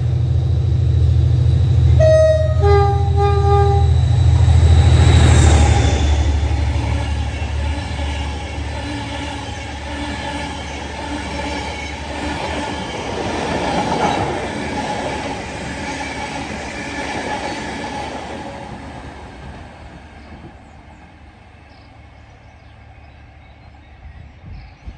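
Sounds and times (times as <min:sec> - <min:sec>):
train wheels running over rails: 0:03.4 - 0:21.4.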